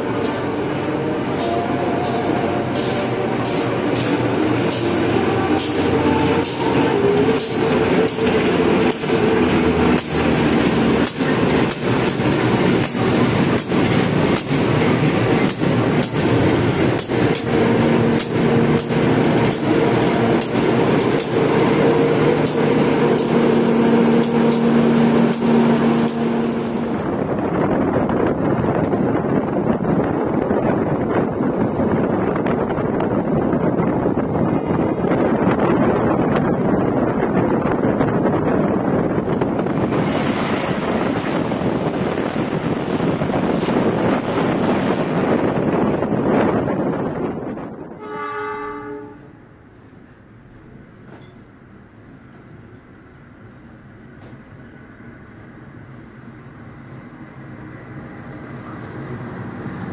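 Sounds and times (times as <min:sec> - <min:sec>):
wheels clacking over rail joints: 0:00.0 - 0:21.6
diesel locomotive engine hum: 0:00.0 - 0:59.9.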